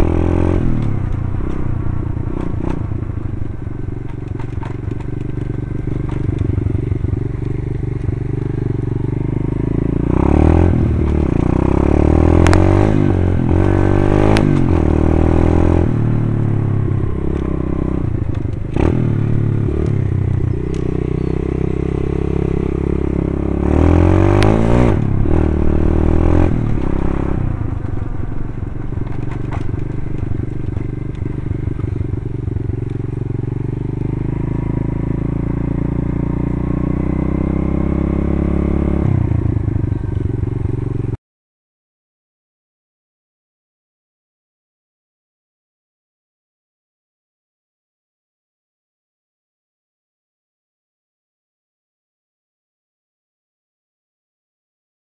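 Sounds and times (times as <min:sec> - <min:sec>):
clicks and clatter: 0:04.0 - 0:06.6, 0:29.0 - 0:32.0.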